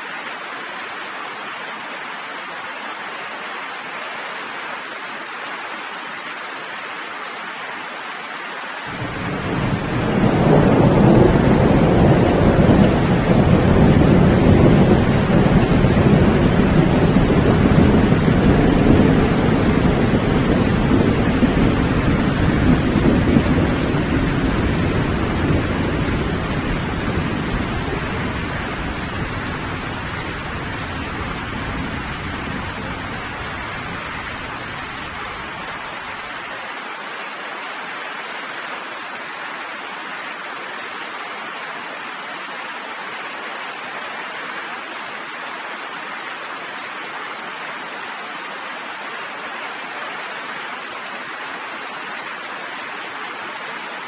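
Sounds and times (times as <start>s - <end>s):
steady rain: 0.0s - 54.0s
thunder rumbling: 8.9s - 35.8s.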